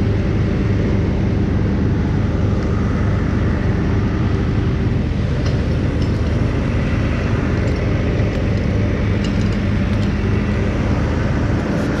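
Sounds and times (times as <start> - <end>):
engine humming steadily: 0.0 - 12.0.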